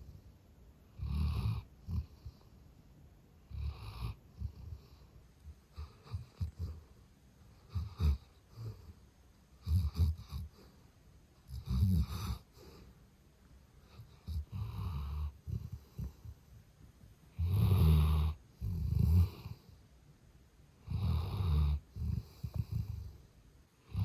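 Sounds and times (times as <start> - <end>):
dog snoring loudly: 0.9 - 2.5, 3.5 - 5.0, 5.7 - 6.9, 7.6 - 8.9, 9.6 - 10.6, 11.5 - 12.8, 13.9 - 16.3, 17.3 - 19.7, 20.8 - 23.2.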